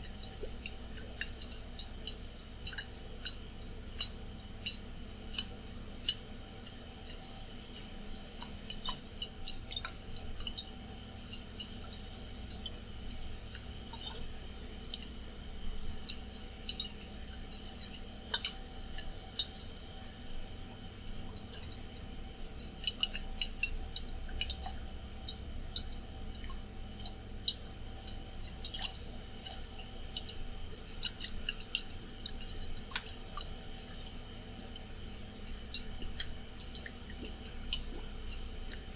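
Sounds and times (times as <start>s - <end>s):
air conditioner hum: 0.0s - 38.9s
water moving in a glass bottle: 21.0s - 38.9s.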